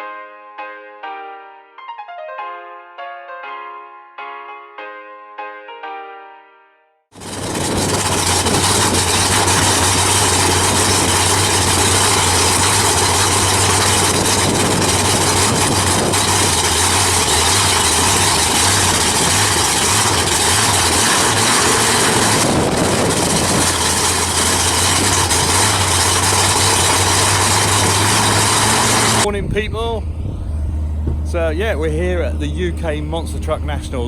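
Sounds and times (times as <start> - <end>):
engine idling: 7.2 - 34.0.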